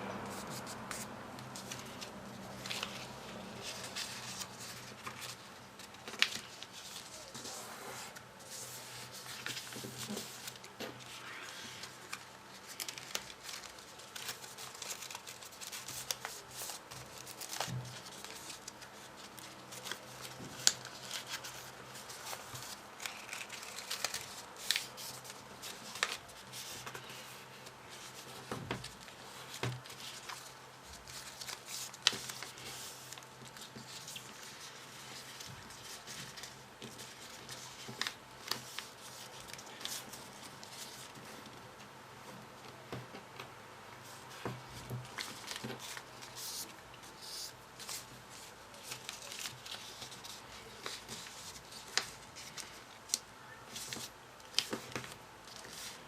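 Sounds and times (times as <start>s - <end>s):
paper rustling and crinkling: 0.2s - 41.9s, 42.6s - 56.0s
sharp paper clicks: 9.2s - 27.3s.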